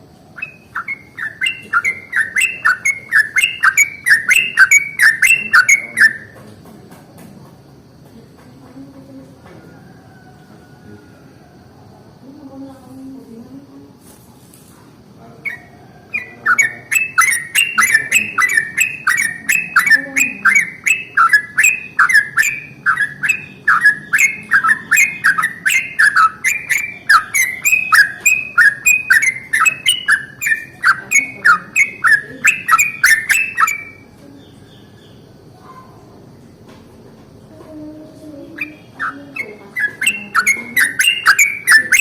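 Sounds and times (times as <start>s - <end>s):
bird singing rolling notes: 0.0s - 6.4s, 15.4s - 36.6s, 37.4s - 42.0s.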